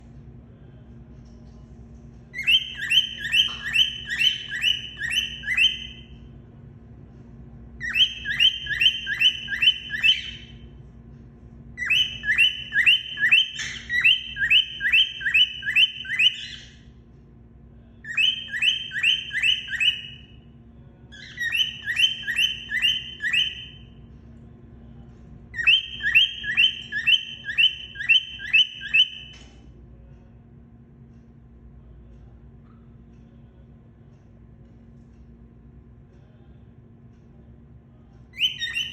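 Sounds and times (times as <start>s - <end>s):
faint steady hum: 0.0s - 38.9s
cockatiel chirping: 2.4s - 6.1s, 7.8s - 10.6s, 11.8s - 16.8s, 18.1s - 20.3s, 21.2s - 23.9s, 25.6s - 29.4s, 38.4s - 38.9s.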